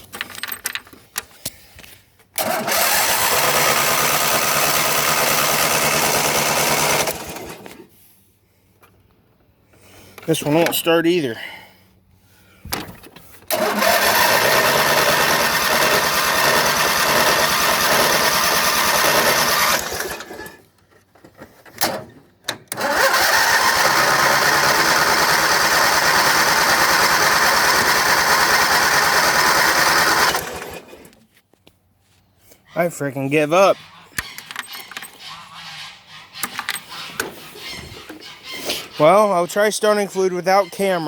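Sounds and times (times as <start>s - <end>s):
starter cranking engine: 2.4s - 7.9s, 13.5s - 20.6s, 21.8s - 31.2s.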